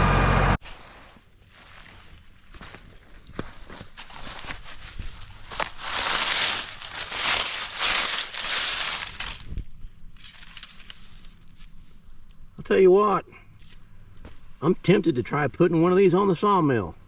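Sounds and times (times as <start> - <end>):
dry leaves crunching: 0.6 - 12.5
twigs snapping: 2.6 - 12.4.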